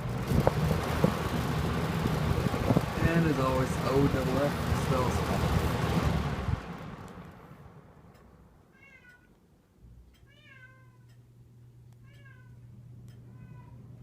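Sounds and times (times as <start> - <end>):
faint low hum: 2.4 - 14.0
cat meowing: 8.7 - 9.3, 10.2 - 11.1, 12.0 - 12.6, 13.3 - 13.8.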